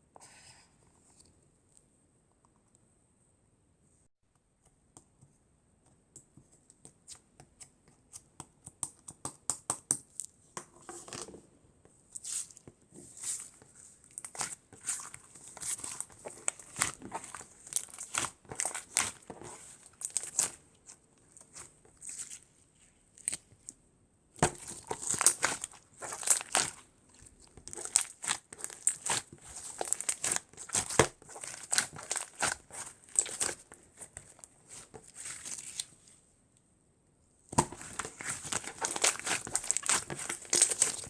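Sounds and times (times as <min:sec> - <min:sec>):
slime crackling and popping: 0:14.1 - 0:20.6, 0:24.4 - 0:35.9, 0:37.6 - 0:41.0.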